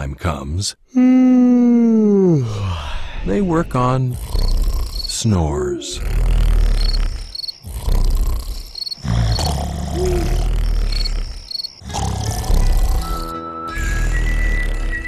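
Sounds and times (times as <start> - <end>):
deep rasping snores: 3.7 - 15.0
crickets chirping: 4.1 - 13.3.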